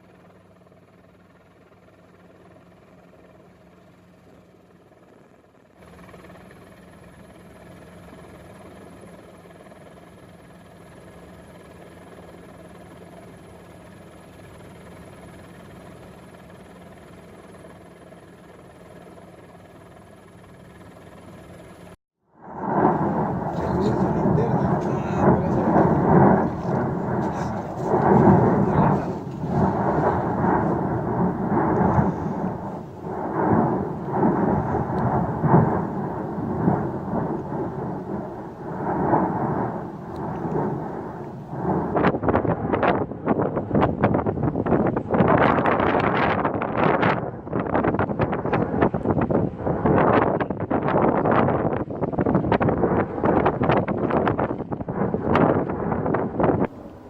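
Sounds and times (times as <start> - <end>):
engine drone: 0.0 - 57.0
volcanic eruption roar: 22.3 - 57.0.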